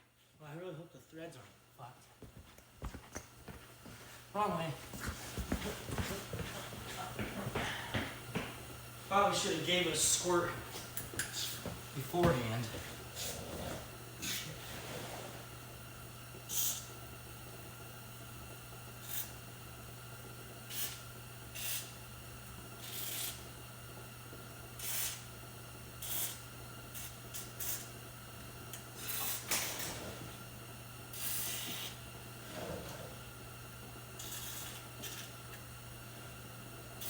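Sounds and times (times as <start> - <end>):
aerosol spray hissing: 31.2 - 32.0.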